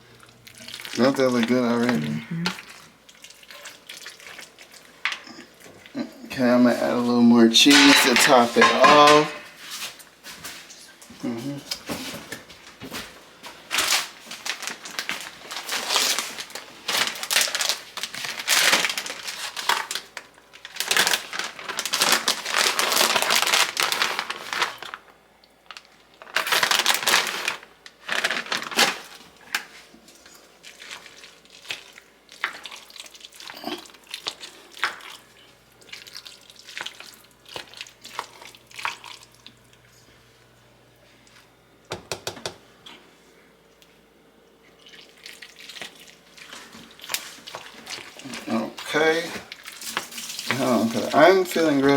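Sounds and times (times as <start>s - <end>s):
plastic bag crinkling: 0.3s - 2.9s, 6.4s - 9.5s, 13.6s - 35.2s, 45.8s - 51.9s.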